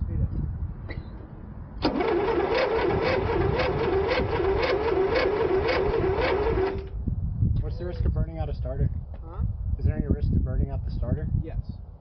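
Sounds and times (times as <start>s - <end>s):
electric starter cranking engine: 1.8s - 7.0s.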